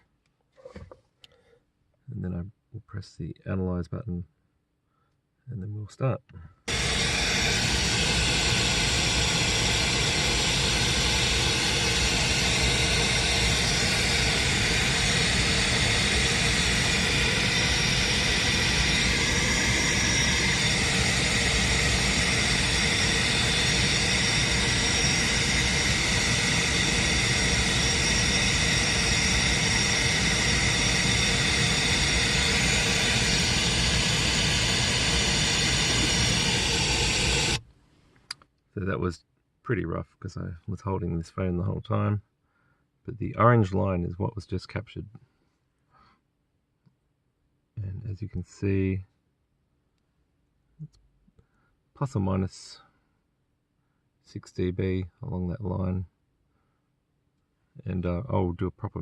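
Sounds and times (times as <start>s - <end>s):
loud test noise through car speakers: 6.7s - 37.6s.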